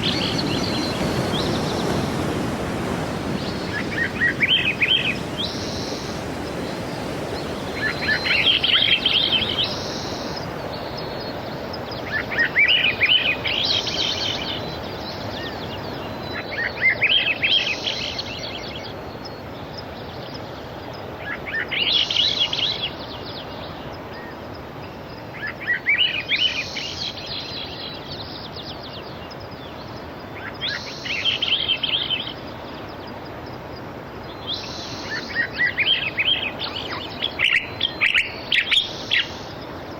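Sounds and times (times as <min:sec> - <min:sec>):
sea waves: 0:00.0 - 0:20.0, 0:29.3 - 0:39.9
songbird singing: 0:00.0 - 0:39.9.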